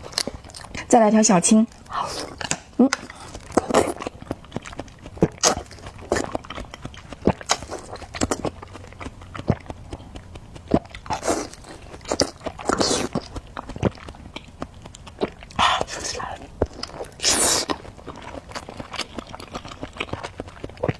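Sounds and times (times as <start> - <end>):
crunching and chewing: 0.0 - 20.9.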